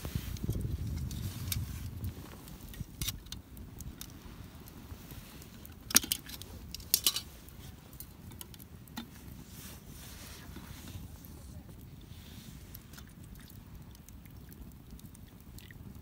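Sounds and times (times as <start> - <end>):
small metal items clinking: 5.9 - 7.3.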